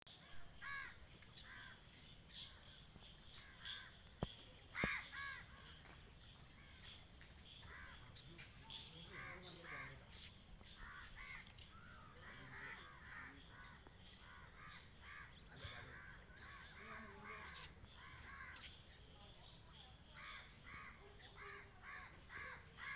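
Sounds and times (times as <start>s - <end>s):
crows cawing: 0.5s - 1.8s, 4.8s - 5.8s, 10.7s - 18.7s, 20.2s - 22.9s.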